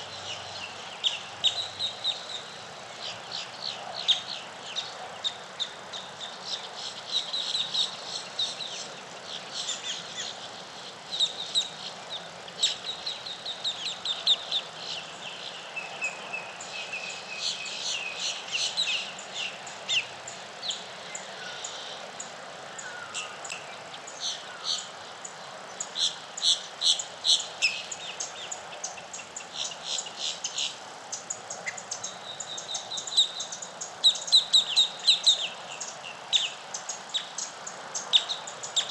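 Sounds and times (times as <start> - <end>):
birds chirping and trilling: 0.0 - 38.9
faint steady background hiss: 0.0 - 38.9.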